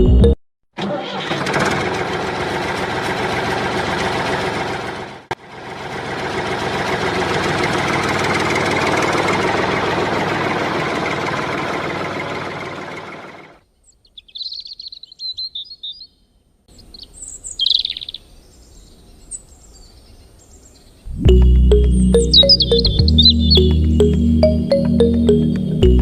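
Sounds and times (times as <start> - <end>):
small tractor engine running: 0.8 - 13.6.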